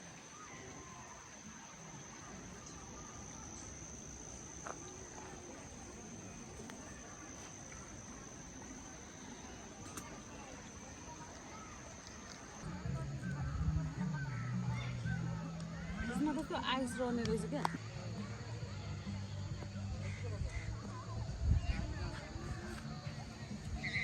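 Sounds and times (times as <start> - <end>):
insect high-pitched trill: 0.2 - 12.6.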